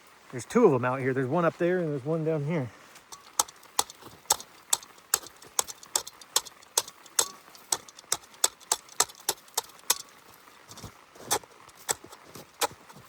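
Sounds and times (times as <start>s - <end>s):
footsteps crunching on snow: 0.7s - 5.8s, 9.2s - 13.0s.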